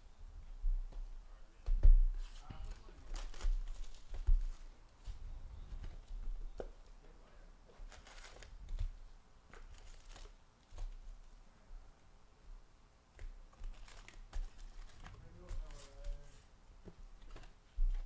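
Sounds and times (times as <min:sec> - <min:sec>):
trading cards rustling and sliding: 0:07.9 - 0:08.5, 0:13.6 - 0:16.5.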